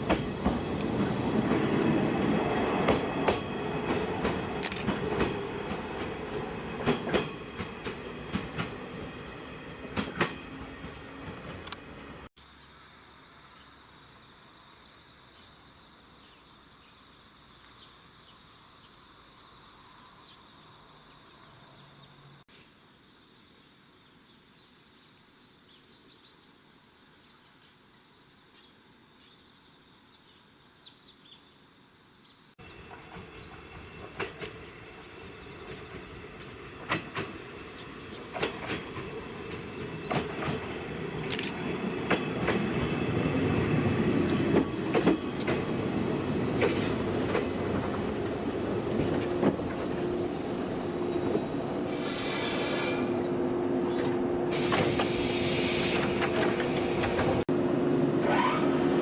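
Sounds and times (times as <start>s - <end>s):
train clacking over rail joints: 0.0s - 12.0s, 32.8s - 51.3s, 52.5s - 57.4s
electric train approaching: 0.0s - 12.3s, 32.6s - 59.0s.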